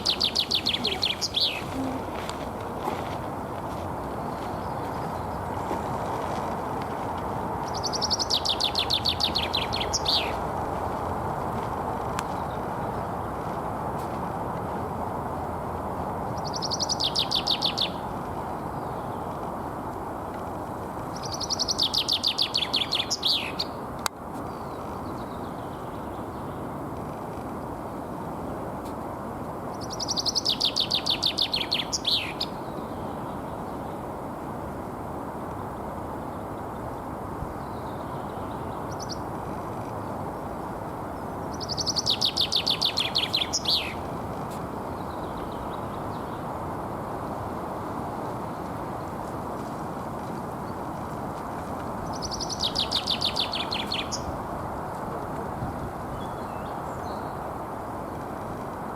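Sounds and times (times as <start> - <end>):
high bird chirp: 0.0 - 2.0, 41.5 - 44.0, 52.1 - 54.3
bird song: 0.0 - 2.2, 4.0 - 5.6, 7.6 - 10.4, 16.4 - 19.4, 21.1 - 23.8, 24.4 - 26.8, 29.7 - 34.1, 35.6 - 46.6, 52.0 - 55.0, 55.6 - 57.5
chaffinch singing: 0.0 - 2.6, 7.6 - 10.6, 16.4 - 19.4, 21.1 - 23.8, 29.7 - 34.0, 37.5 - 47.0, 52.0 - 55.0.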